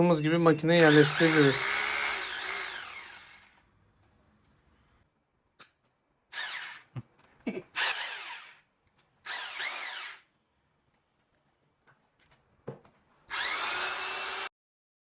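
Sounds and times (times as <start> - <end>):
hammer drill motor: 0.8 - 3.6, 6.3 - 6.9, 7.8 - 8.6, 9.2 - 10.3, 13.3 - 14.5.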